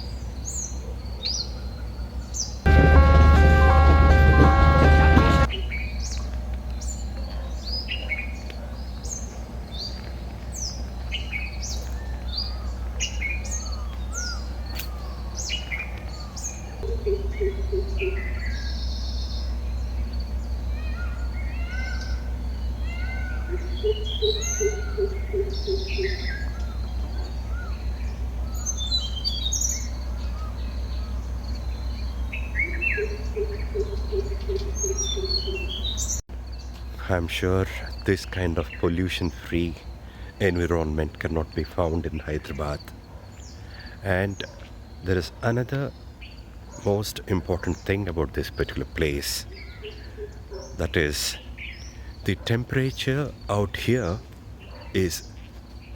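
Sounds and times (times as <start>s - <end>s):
birds chirping and whistling: 0.0s - 2.7s, 5.4s - 55.9s
steady low rumble: 2.7s - 35.2s.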